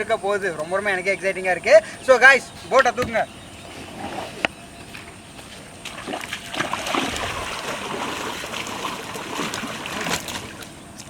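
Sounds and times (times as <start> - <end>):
water splashing and sloshing: 3.0 - 11.0.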